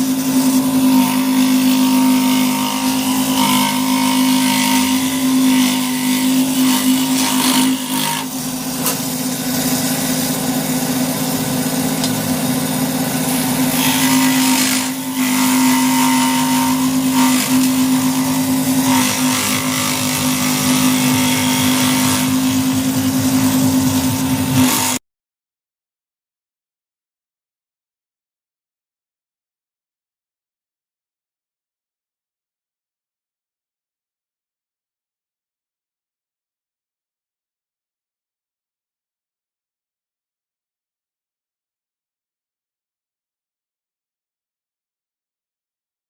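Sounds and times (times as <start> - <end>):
electric woodworking tool running: 0.0 - 25.0.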